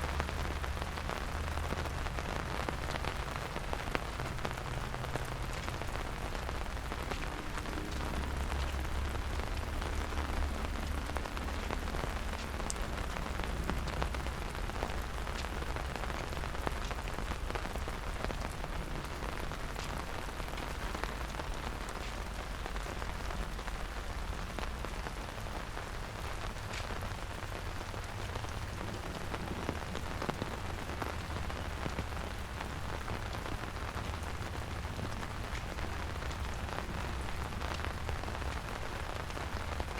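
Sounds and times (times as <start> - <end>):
rain falling: 0.0 - 39.9
low rumble: 0.8 - 26.6.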